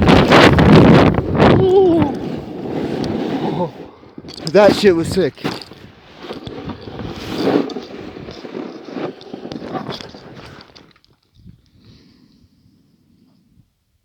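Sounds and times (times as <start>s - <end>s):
snowboard scraping on snow: 0.0s - 10.7s.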